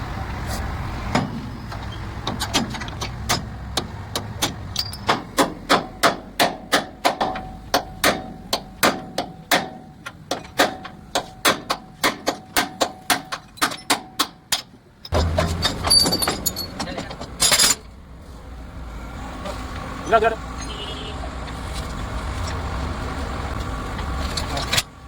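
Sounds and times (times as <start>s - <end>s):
metallic ring: 15.1s - 16.8s.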